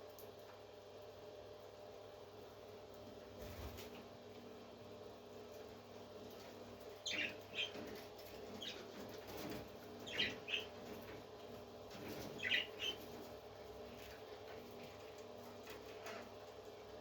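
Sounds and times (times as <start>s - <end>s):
parrot chirping: 7.0s - 7.8s, 10.0s - 10.8s, 12.4s - 13.1s.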